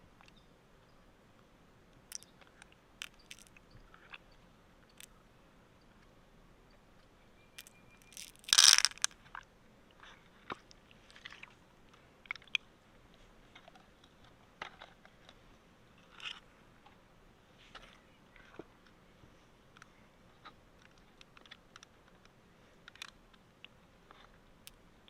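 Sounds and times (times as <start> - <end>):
shell clicks and scrapes: 2.1 - 4.2, 7.6 - 9.4
shell crunching: 3.0 - 3.6, 7.6 - 9.2.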